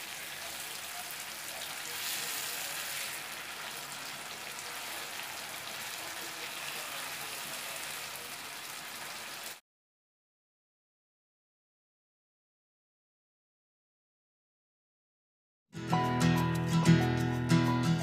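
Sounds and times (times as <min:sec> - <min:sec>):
fish sizzling in hot oil: 0:00.0 - 0:09.6.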